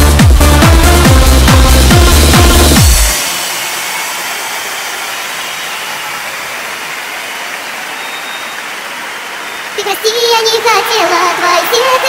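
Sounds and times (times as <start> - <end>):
electronic dance music: 0.0 - 8.0.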